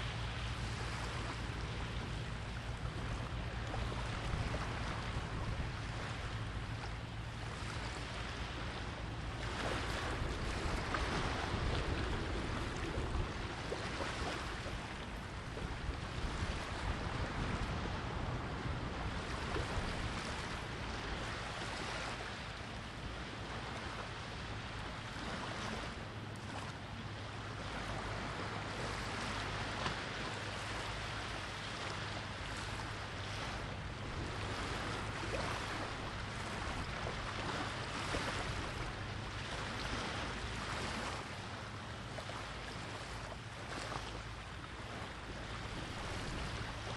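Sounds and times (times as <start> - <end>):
wind on microphone: 0.0 - 25.9, 32.4 - 41.2, 45.3 - 46.9
sea surf washing in: 0.0 - 26.8, 27.4 - 46.9.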